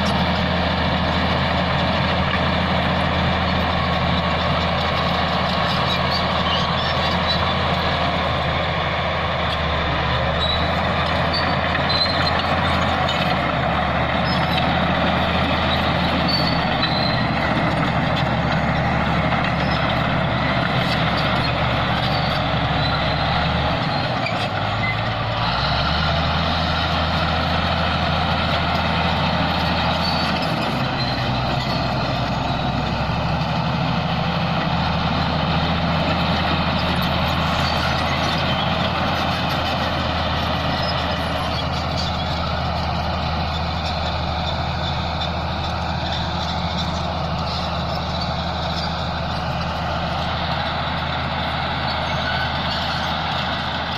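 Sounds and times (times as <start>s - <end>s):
bulldozer diesel engine running: 0.0s - 53.9s
short high squeals: 10.3s - 12.8s, 15.6s - 17.4s.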